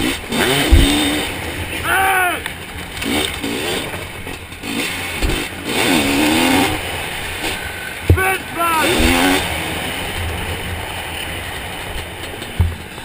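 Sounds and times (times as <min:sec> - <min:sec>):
chassis rattle: 0:00.0 - 0:08.2
motorcycle engine revving: 0:00.0 - 0:13.0
wind: 0:00.0 - 0:13.0
low thud: 0:00.7 - 0:01.1.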